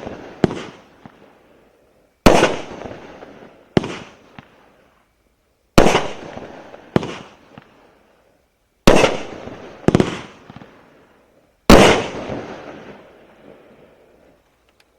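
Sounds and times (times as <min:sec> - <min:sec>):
firework bangs: 0:00.0 - 0:01.2, 0:02.3 - 0:04.5, 0:05.8 - 0:07.8, 0:08.9 - 0:10.8, 0:11.7 - 0:13.1
small firework cracks: 0:00.0 - 0:01.3, 0:02.3 - 0:04.6, 0:05.8 - 0:07.9, 0:08.9 - 0:11.0.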